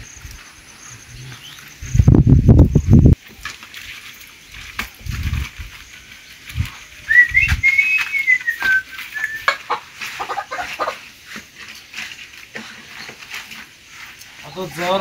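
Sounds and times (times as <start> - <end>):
bird call rising and falling: 7.0 - 10.9
bird clucking: 8.4 - 11.2.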